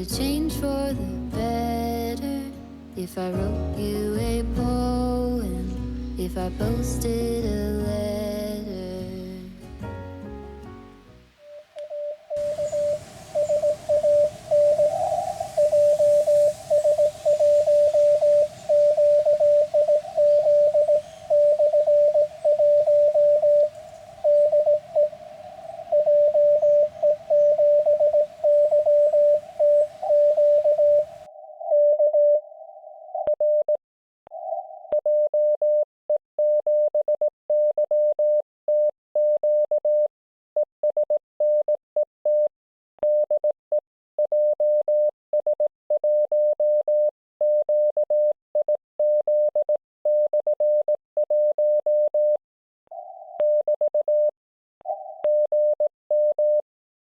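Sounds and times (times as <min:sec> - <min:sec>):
radio band hiss: 0:11.4 - 0:31.3
morse code tones: 0:11.5 - 0:32.4.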